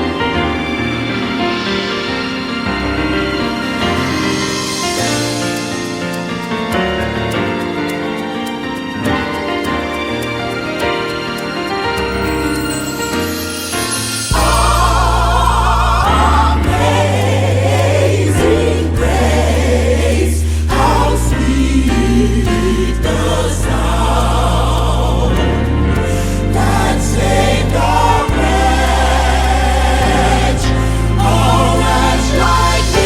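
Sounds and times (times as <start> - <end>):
singing voices: 14.1 - 33.0
long held bass notes: 14.4 - 33.0.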